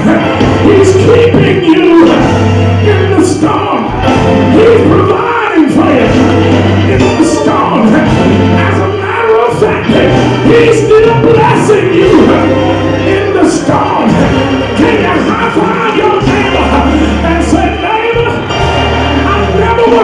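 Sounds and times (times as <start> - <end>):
gospel band with bass and drums: 0.0 - 20.0
people singing: 11.9 - 20.0.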